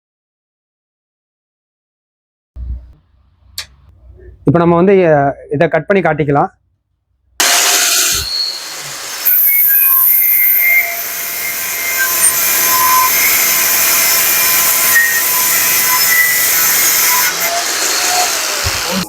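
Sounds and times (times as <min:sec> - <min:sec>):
angle grinder cutting metal: 0:07.4 - 0:19.0.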